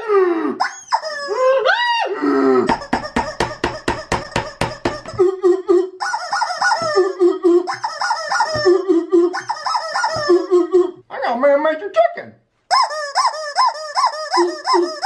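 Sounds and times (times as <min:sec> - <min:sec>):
toy chicken clucks: 0:00.6 - 0:01.4, 0:02.7 - 0:05.2, 0:06.0 - 0:10.5, 0:12.7 - 0:15.0
toy chicken squawking: 0:00.6 - 0:01.7, 0:02.7 - 0:05.3, 0:06.0 - 0:11.0, 0:12.7 - 0:15.0.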